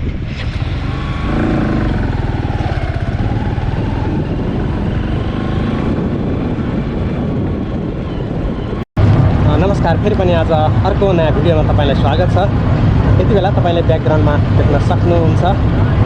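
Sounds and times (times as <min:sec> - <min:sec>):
vehicle engine running: 0:00.4 - 0:07.9.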